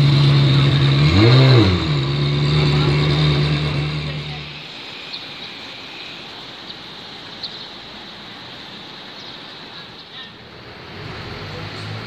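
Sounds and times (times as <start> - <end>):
car engine droning: 0.0 - 7.2, 10.5 - 12.0
outdoor rush of noise: 0.0 - 12.0.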